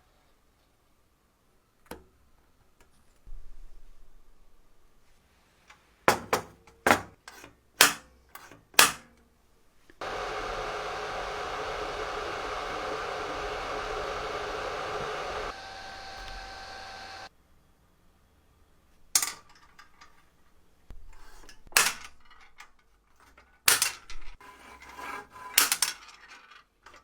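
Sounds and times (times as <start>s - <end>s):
electric blower running: 10.0s - 17.3s.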